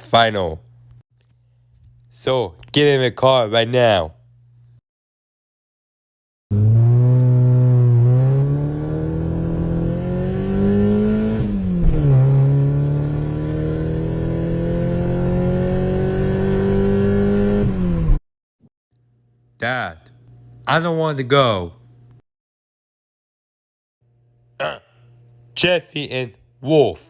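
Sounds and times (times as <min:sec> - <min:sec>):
car engine accelerating: 0:06.5 - 0:18.2.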